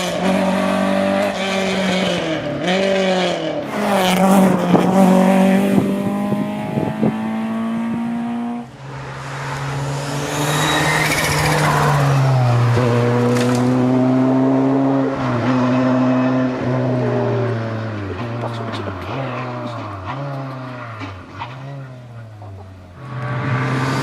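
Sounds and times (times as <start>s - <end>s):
rally car engine at high revs: 0.0s - 24.0s
second car engine revving: 0.0s - 24.0s.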